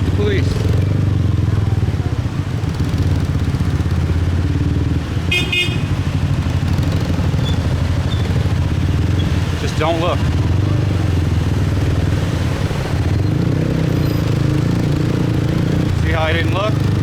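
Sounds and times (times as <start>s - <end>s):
motorbike engine rumble: 0.0s - 17.0s
road noise: 0.0s - 17.0s
vehicle horn beep: 5.3s - 6.4s.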